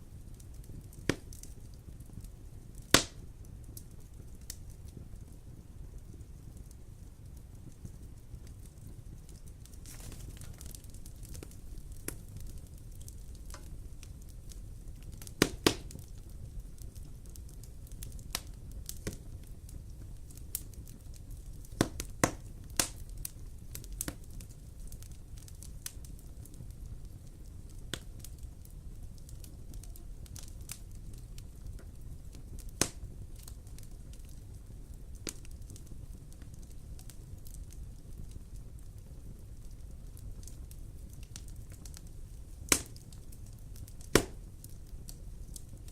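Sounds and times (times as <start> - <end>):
fire crackles and pops: 0.0 - 45.9
low rumble of flames: 0.0 - 45.9.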